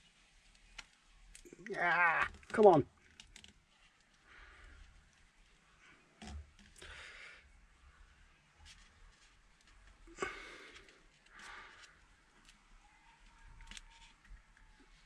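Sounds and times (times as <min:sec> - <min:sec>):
soft breaths: 0:03.8 - 0:15.0.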